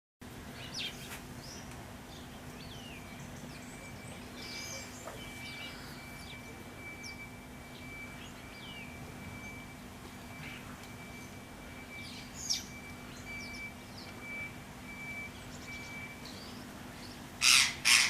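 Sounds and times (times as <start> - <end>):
birds chirping: 0.5 - 18.0
thin steady high tone: 3.1 - 16.3.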